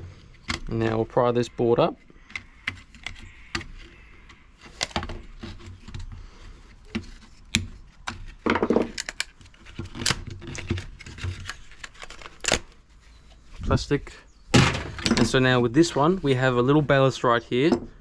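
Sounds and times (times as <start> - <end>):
pitched creak: 2.0 - 5.8
plastic clicks and cracks: 6.8 - 12.8.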